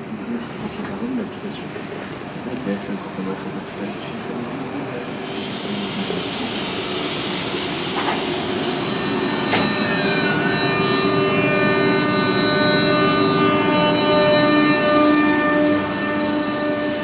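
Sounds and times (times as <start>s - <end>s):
passenger train running: 0.0s - 17.0s
wheels squealing on rails: 5.1s - 17.0s.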